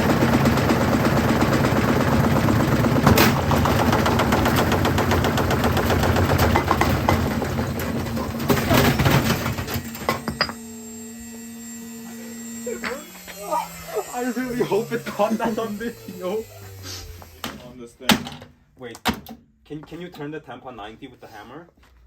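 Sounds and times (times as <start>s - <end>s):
bricks clattering in spinning drum: 10.1s - 10.6s.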